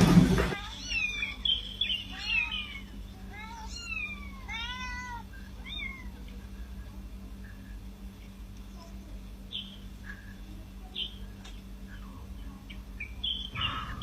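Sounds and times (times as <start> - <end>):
cat meowing: 0.6 - 6.2.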